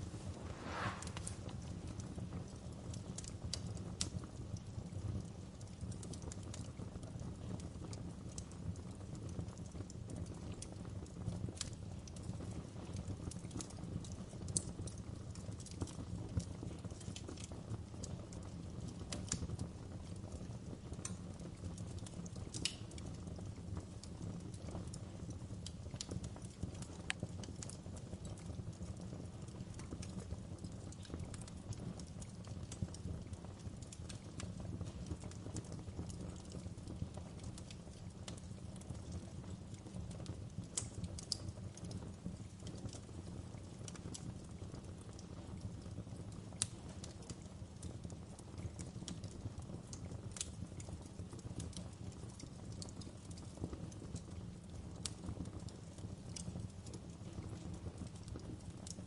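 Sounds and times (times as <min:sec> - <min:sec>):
burning logs popping and snapping: 0:00.0 - 0:59.0
low rumble of flame: 0:00.0 - 0:59.0
wood fire crackling: 0:00.0 - 0:59.0.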